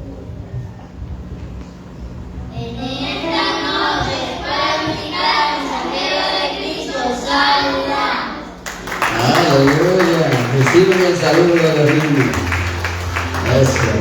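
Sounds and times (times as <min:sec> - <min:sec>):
children singing together: 0:02.7 - 0:08.6.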